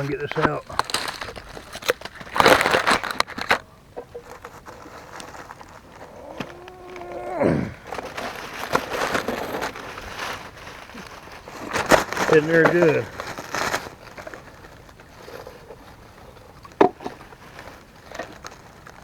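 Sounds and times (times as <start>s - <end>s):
camera handling rustle: 0.0s - 7.2s
leaves scraping and crackling: 0.0s - 19.0s.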